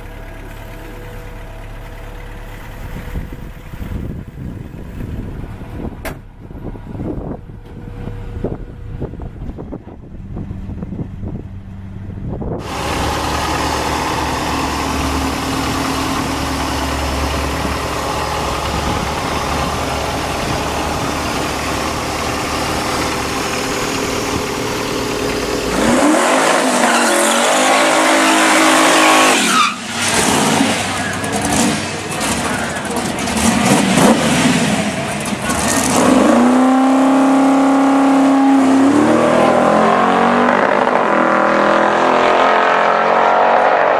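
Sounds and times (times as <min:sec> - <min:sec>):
car engine revving: 0:12.5 - 0:43.9.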